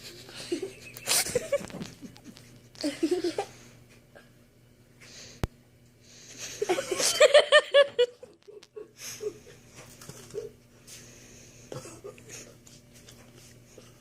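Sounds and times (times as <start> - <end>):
person laughing: 0.0 - 3.6, 6.4 - 9.6.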